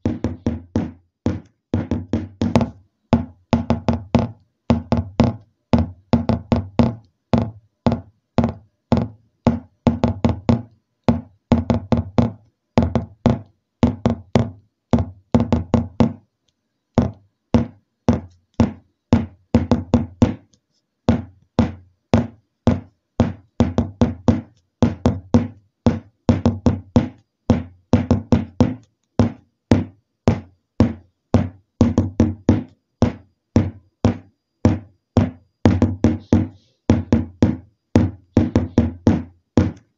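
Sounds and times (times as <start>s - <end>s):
sharp knocks: 0.0s - 16.2s, 17.0s - 20.5s, 21.1s - 39.9s.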